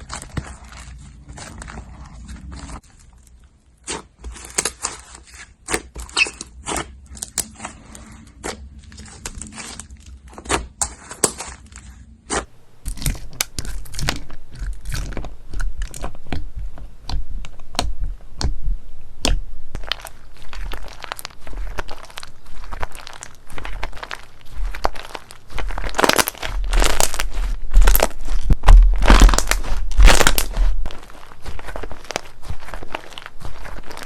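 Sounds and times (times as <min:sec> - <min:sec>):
slime crackling when squeezed: 0:19.7 - 0:34.0.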